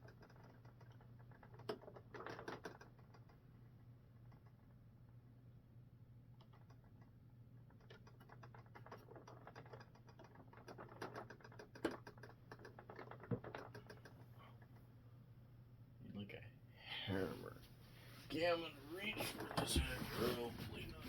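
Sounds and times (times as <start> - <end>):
small parts clicking and tapping: 0.0 - 5.2, 6.3 - 14.9
faint low hum: 12.2 - 21.0.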